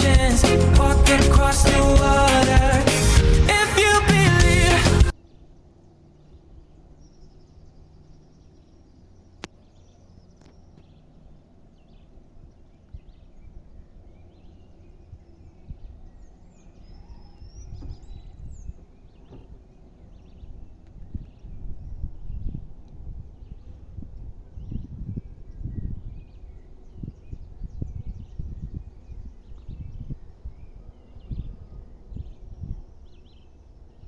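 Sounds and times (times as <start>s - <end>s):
birds chirping and whistling: 0.0s - 34.0s.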